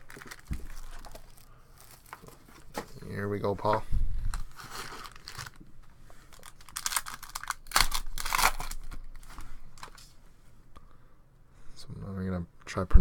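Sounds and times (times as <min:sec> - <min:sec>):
foil wrapper tearing and crinkling: 0:00.0 - 0:02.4, 0:04.3 - 0:05.6, 0:06.3 - 0:10.0.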